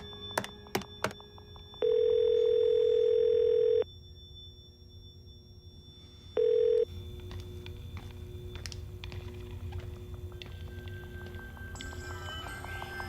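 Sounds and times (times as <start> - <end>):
telephone ringback tone: 0.0 - 3.9, 6.3 - 6.9.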